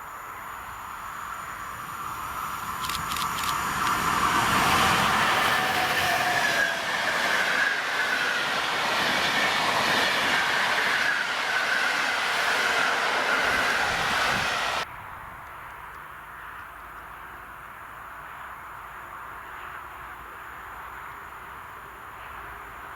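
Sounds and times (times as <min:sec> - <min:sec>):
train passing: 0:00.0 - 0:14.9.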